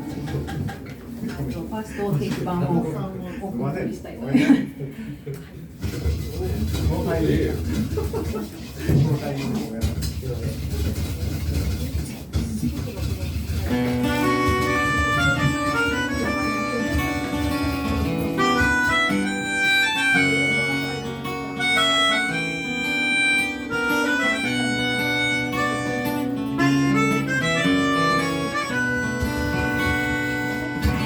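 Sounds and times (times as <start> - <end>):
acoustic guitar: 0.0 - 1.8, 5.7 - 31.0
sustained melody line: 13.7 - 31.0.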